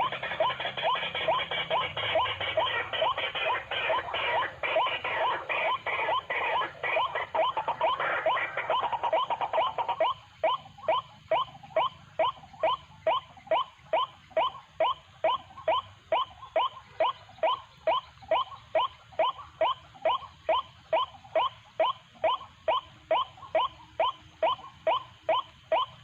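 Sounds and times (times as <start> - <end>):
waterhen sharp kwak calls: 0.0 - 26.0.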